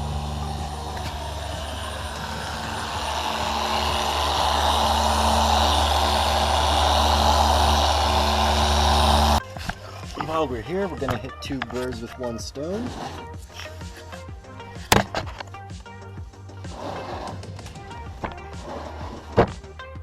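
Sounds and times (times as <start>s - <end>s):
polishing machine buzzing: 0.0s - 9.5s.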